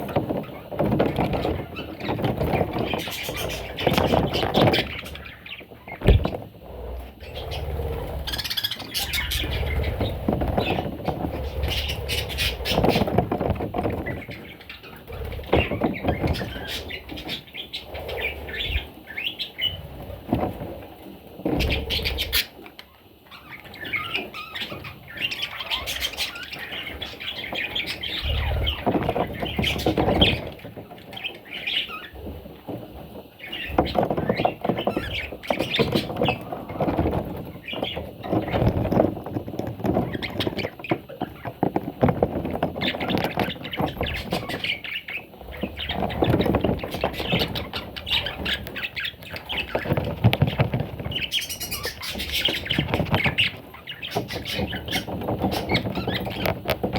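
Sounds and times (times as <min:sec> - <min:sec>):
scattered knocks: 0:00.0 - 0:07.5
budgerigars chirping and squawking: 0:00.1 - 0:20.4, 0:21.4 - 0:32.3, 0:33.4 - 0:56.9.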